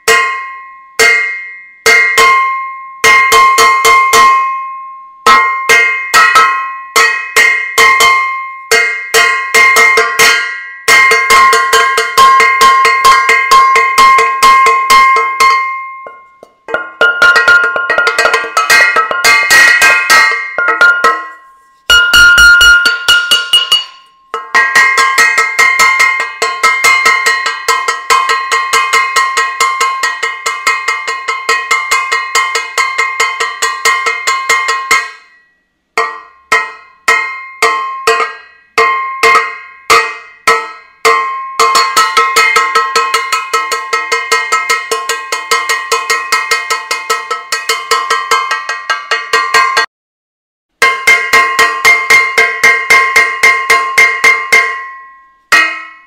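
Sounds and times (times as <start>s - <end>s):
metal saucepan clanging: 5.3s - 35.2s.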